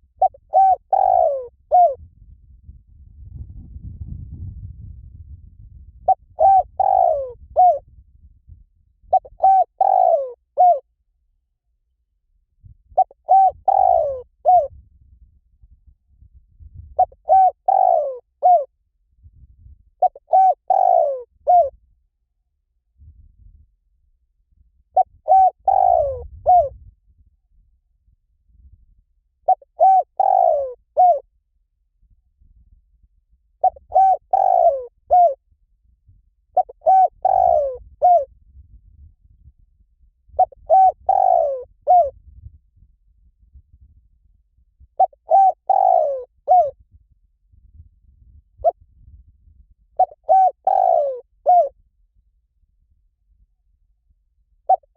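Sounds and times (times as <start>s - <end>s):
dove cooing: 0.2s - 2.0s, 6.0s - 7.8s, 9.1s - 10.8s, 13.0s - 14.8s, 17.0s - 18.7s, 20.0s - 21.7s, 25.0s - 26.8s, 29.5s - 31.2s, 33.6s - 35.4s, 36.6s - 38.3s, 40.4s - 42.1s, 45.0s - 46.8s, 50.0s - 51.8s, 54.7s - 54.9s.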